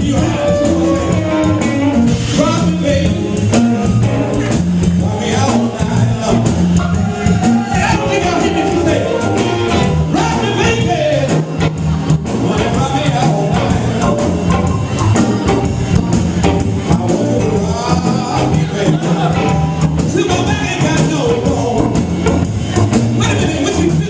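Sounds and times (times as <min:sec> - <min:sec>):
person singing: 0:00.0 - 0:01.6, 0:12.3 - 0:22.2
live blues band playing: 0:00.0 - 0:24.0
steady drum beat: 0:00.0 - 0:24.0.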